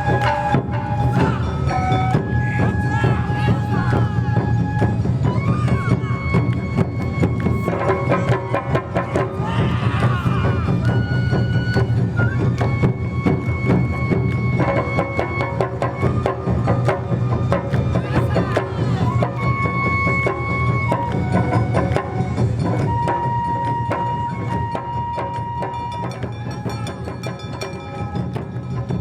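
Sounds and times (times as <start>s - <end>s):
deep drumming: 0.0s - 23.0s
high flute: 0.0s - 29.0s
sharp percussion strikes: 0.0s - 29.0s.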